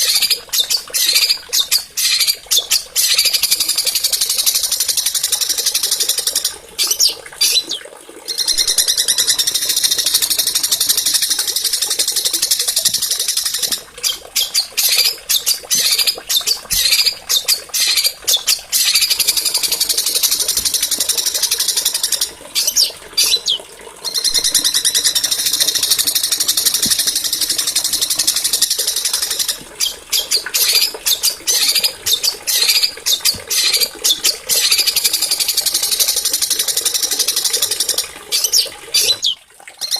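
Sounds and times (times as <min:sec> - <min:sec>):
songbird trilling: 0:21.7 - 0:27.8, 0:28.4 - 0:35.3.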